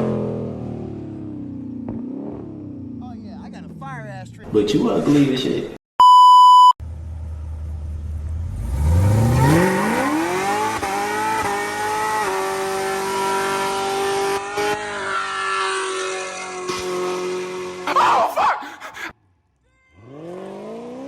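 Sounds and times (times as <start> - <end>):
car engine revving: 0.0 - 4.4, 6.9 - 18.0, 20.0 - 21.0.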